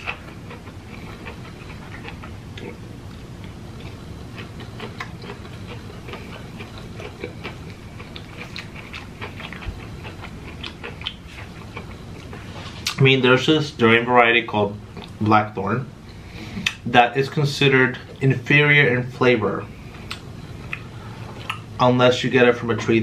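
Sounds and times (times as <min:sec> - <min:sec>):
wet chewing: 0:00.0 - 0:13.0, 0:20.0 - 0:21.7
low steady hum: 0:00.0 - 0:23.0
lip smacks: 0:03.4 - 0:13.0, 0:16.6 - 0:16.8, 0:20.0 - 0:21.7.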